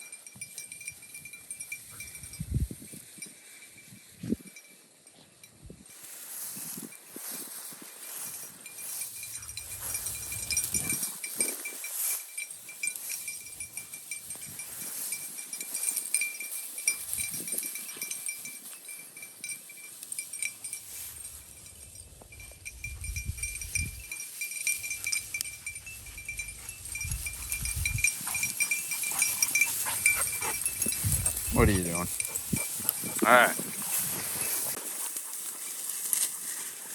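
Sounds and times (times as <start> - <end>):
thin ringing tone: 0.0 - 5.6, 6.6 - 34.8
low rumbles of wind or brush: 5.6 - 36.9
dog panting and snuffling: 25.0 - 36.9.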